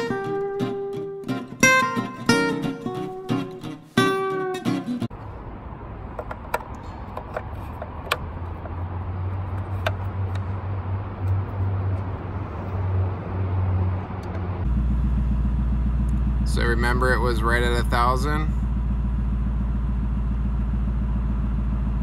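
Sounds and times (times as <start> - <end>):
guitar tune: 0.0 - 5.1
oil cap clicking: 6.2 - 8.8
car engine idling: 13.8 - 22.0.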